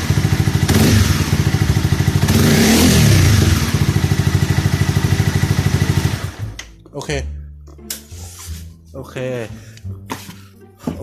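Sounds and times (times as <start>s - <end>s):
motorcycle engine revving and idling: 0.0s - 6.6s.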